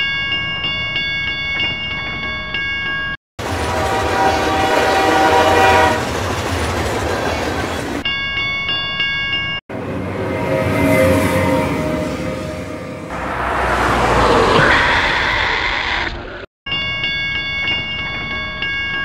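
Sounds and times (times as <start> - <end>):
train horn: 3.4 - 6.2, 9.7 - 13.7
train rushing past: 3.4 - 8.0, 9.7 - 15.6.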